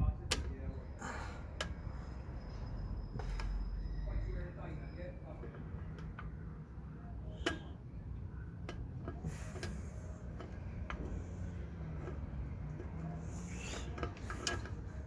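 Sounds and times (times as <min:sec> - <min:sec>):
metallic clicks and taps of tools: 0:00.2 - 0:00.6.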